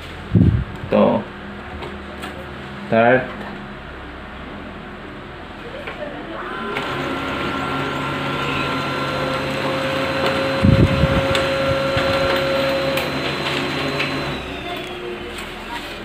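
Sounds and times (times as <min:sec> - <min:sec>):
printer motors whirring: 0:05.8 - 0:16.0.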